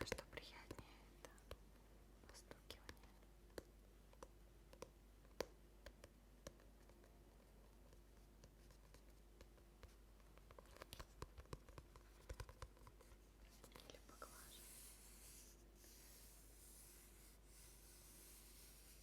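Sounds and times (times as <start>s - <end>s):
clicks and taps of objects handled: 0.0s - 14.0s
faint low hum: 0.0s - 19.0s.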